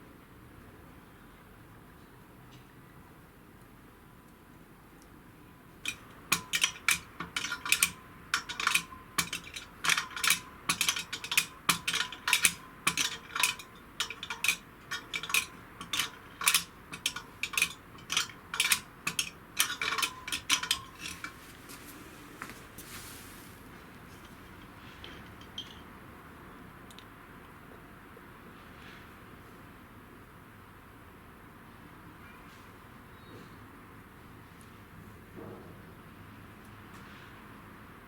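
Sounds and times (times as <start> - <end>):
metal parts clinking: 5.8 - 21.6, 24.1 - 25.9.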